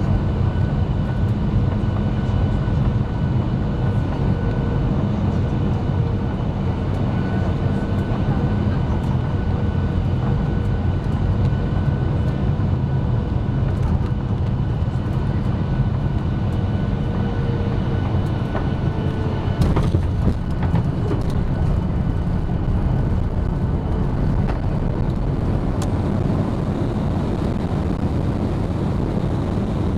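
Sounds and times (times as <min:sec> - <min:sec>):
low rumble of engines and airflow: 0:00.0 - 0:29.9
thin engine whine: 0:14.2 - 0:29.9.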